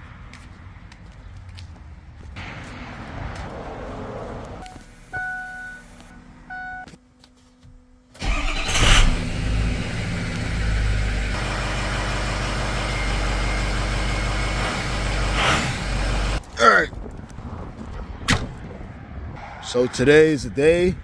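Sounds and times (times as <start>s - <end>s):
engine cranking and idling: 8.2s - 16.4s.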